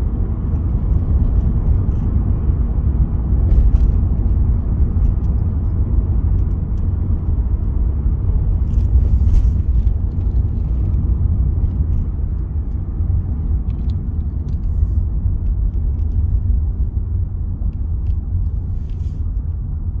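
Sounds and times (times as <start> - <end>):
faint rustles: 8.6 - 11.0, 18.0 - 19.5.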